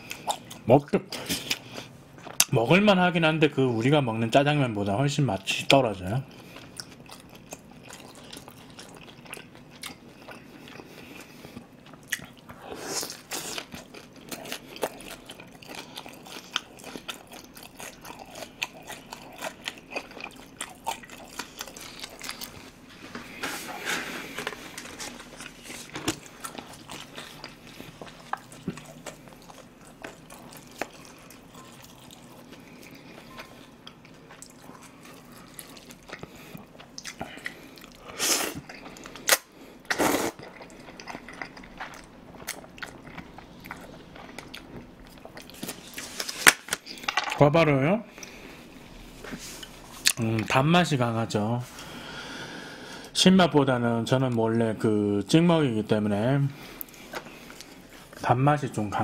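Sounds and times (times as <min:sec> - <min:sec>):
chewing crispy pork: 0:00.0 - 0:02.6, 0:04.3 - 0:47.1.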